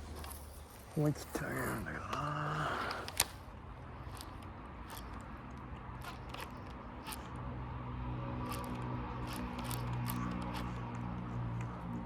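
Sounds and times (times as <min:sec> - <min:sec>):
fishing reel clicking: 0:02.8 - 0:07.5, 0:08.4 - 0:11.8.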